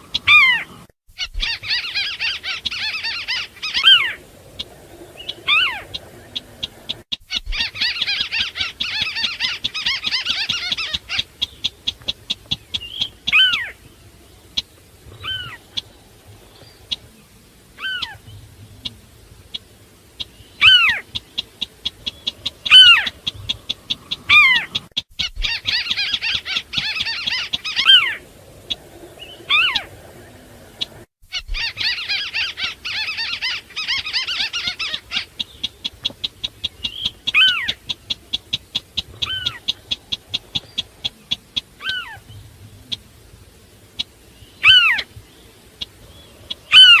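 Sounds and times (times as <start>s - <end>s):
dense bird chattering: 0.0s - 47.0s
rapid high pips: 18.8s - 47.0s
bird calls falling in pitch: 45.8s - 47.0s.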